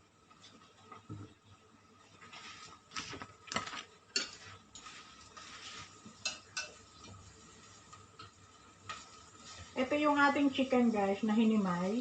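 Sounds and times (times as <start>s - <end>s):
soft rustling: 2.0s - 8.2s, 8.8s - 11.1s.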